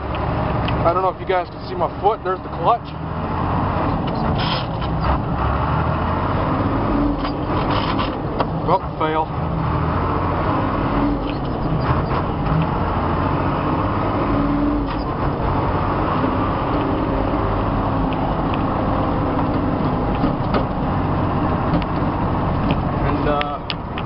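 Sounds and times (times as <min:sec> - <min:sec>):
truck engine running: 0:00.0 - 0:24.0
truck body knocks and creaks: 0:03.8 - 0:05.8, 0:07.1 - 0:08.7, 0:11.0 - 0:12.8, 0:14.8 - 0:15.4, 0:19.2 - 0:23.0.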